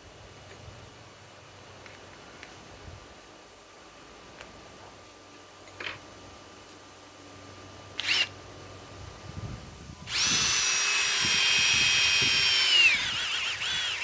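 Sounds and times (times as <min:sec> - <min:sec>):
impact driver motor whine: 0:08.0 - 0:08.3, 0:10.1 - 0:14.0.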